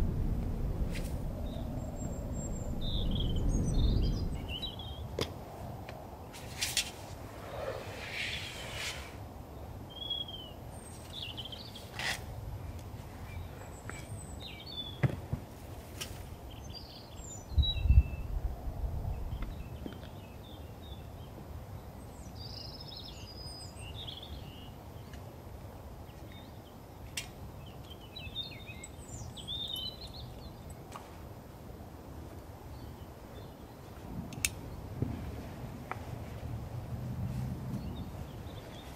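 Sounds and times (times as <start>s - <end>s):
wind rumble on microphone: 0.0s - 10.0s, 16.2s - 24.7s, 27.4s - 38.9s
songbirds chirping: 0.0s - 36.4s, 37.7s - 38.9s.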